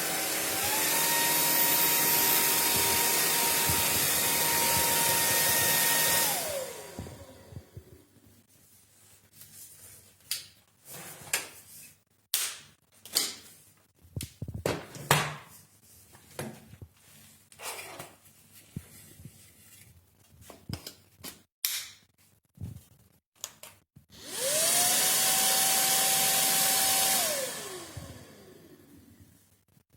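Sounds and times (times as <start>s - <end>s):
vacuum cleaner motor whine: 0.0s - 8.0s, 24.2s - 29.2s.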